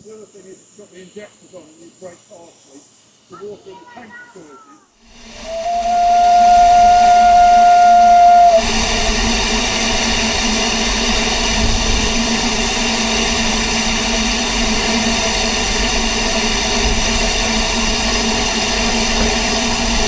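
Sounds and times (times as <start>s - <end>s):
steam hissing: 0.0s - 20.0s
steam locomotive whistle: 5.2s - 20.0s.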